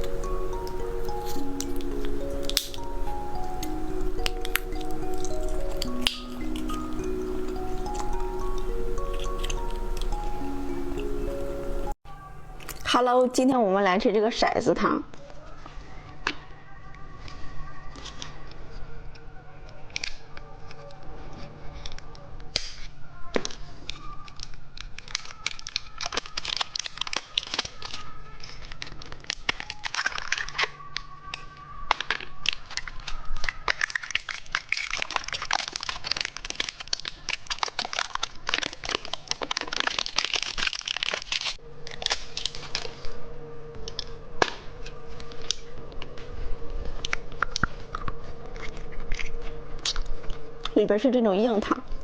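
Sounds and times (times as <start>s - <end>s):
plastic wrapper crinkling: 0.0s - 11.8s, 23.5s - 52.0s.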